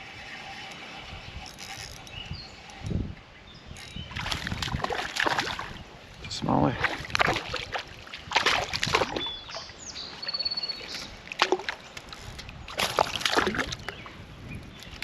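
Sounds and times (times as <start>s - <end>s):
creek water splashing: 4.1s - 14.2s
bird chirping faintly: 9.1s - 11.2s.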